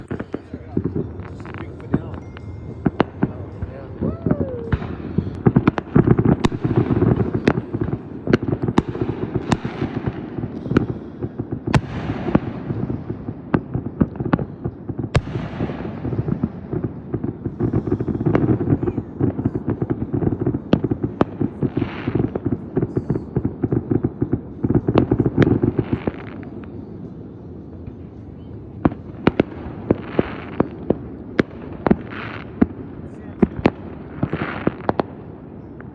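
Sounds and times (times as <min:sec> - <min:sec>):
fireworks hissing: 0:00.0 - 0:12.9, 0:17.4 - 0:23.4
fireworks bangs and crackles: 0:00.0 - 0:35.9.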